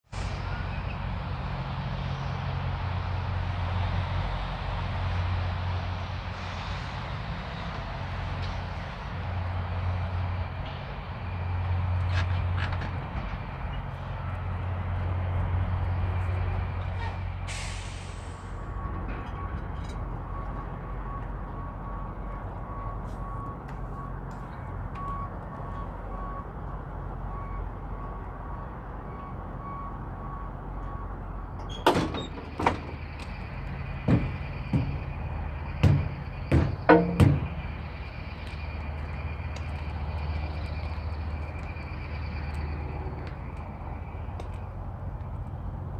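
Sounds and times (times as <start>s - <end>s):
truck diesel engine running: 0.2s - 45.9s
sharp knocks and clunks: 31.7s - 33.4s, 34.0s - 37.8s.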